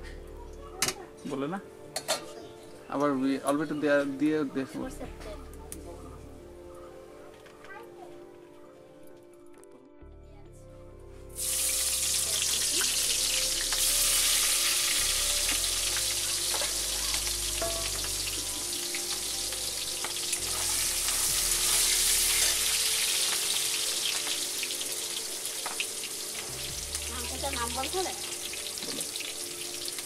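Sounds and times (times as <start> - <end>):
onions sizzling in oil: 11.4 - 30.0
spatula scraping wok: 19.9 - 25.0.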